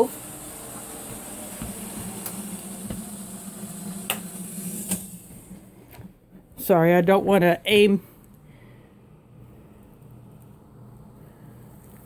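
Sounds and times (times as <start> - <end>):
hot water pouring from kettle: 0.0 - 5.6.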